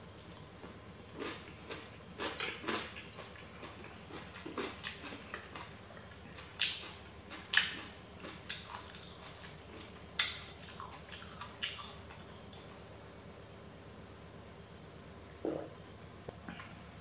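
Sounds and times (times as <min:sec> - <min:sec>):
wet chewing clicks and smacks: 0:01.2 - 0:12.6.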